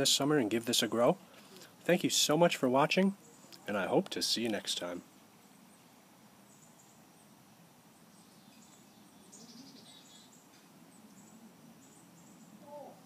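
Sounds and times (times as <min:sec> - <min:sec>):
faint high bird chirps: 0:08.0 - 0:13.0.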